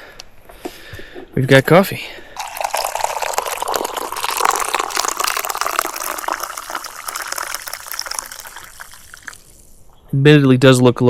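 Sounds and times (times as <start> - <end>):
coffee pouring into a cup: 2.4 - 9.8.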